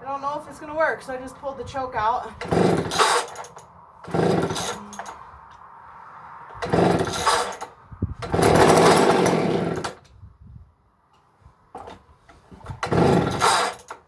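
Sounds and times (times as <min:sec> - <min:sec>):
chainsaw engine cranking: 0:02.3 - 0:05.2, 0:06.6 - 0:10.1, 0:12.6 - 0:14.0
chainsaw starter cord pulls: 0:02.4 - 0:05.2, 0:06.6 - 0:10.2, 0:11.8 - 0:14.0.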